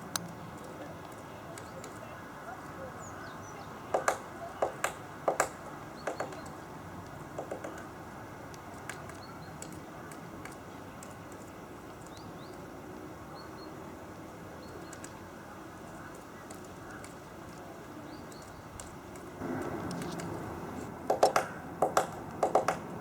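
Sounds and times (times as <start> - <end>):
woodpecker pecking: 3.8 - 12.8, 14.7 - 23.0.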